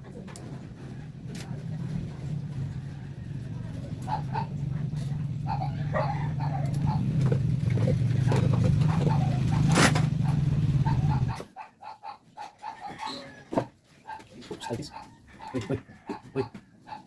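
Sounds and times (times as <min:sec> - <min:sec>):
car engine running: 0:00.7 - 0:11.4.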